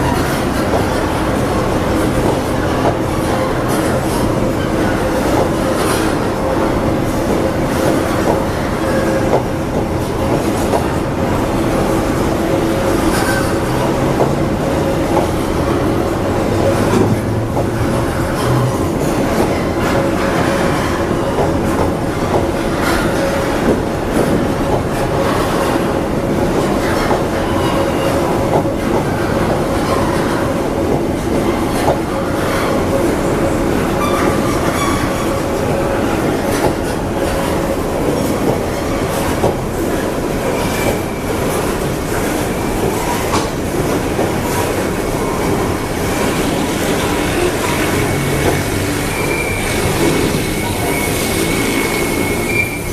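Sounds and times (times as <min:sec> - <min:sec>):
train wheels clacking over rails: 0:00.0 - 0:52.9
wheel squeal: 0:34.0 - 0:35.4, 0:46.4 - 0:52.9.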